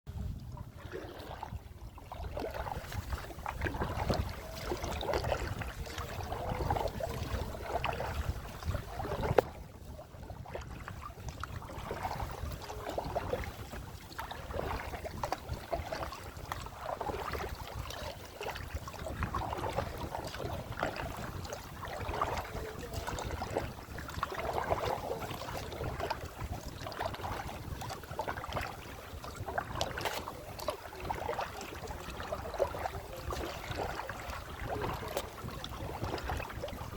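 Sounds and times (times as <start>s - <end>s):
water splashing around kayak: 0.1s - 36.9s.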